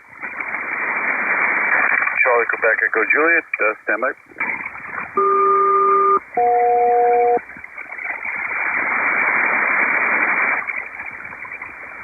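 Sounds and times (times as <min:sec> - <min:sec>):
radio static hiss: 0:01.2 - 0:04.2
two-tone radio chords: 0:05.2 - 0:07.4.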